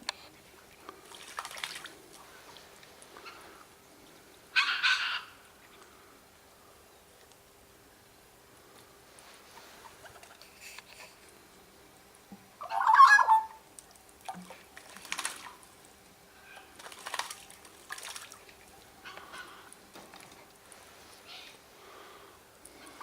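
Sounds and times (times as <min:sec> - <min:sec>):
bird splashing in water: 0:00.9 - 0:03.4, 0:13.8 - 0:15.9, 0:16.5 - 0:20.7
bird squawk: 0:04.6 - 0:05.4, 0:12.6 - 0:13.6.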